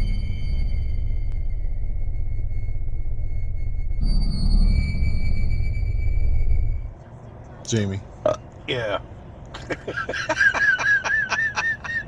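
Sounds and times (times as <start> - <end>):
high synth tone: 0.0 - 6.9
low droning rumble: 0.0 - 8.5.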